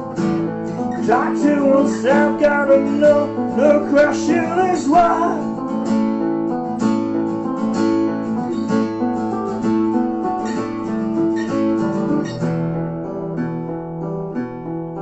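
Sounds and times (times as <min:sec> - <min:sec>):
acoustic guitars strumming chords: 0:00.0 - 0:15.0.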